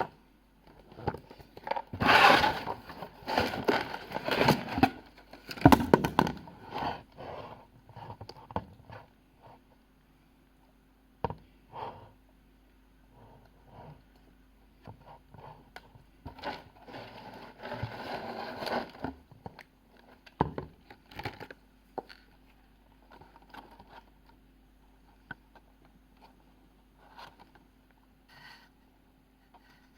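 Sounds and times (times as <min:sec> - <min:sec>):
packaging rustling and scraping: 0:00.8 - 0:07.2, 0:16.3 - 0:19.2.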